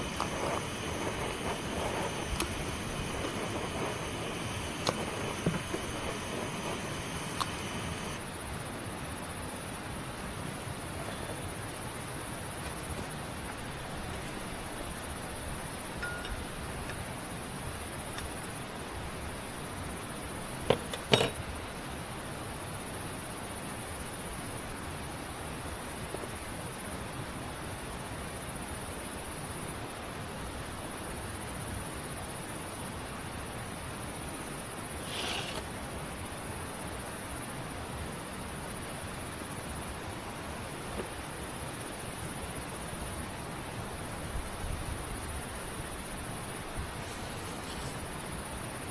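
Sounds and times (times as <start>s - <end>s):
insects trilling: 0.0s - 8.3s, 43.9s - 48.9s
background hiss: 0.0s - 48.9s.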